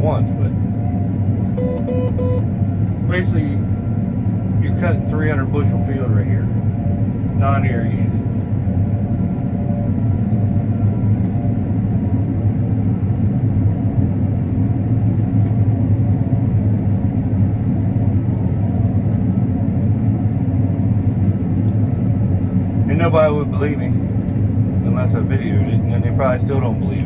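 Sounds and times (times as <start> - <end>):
combine harvester running: 0.0 - 27.0
faint steady tones: 0.3 - 2.5.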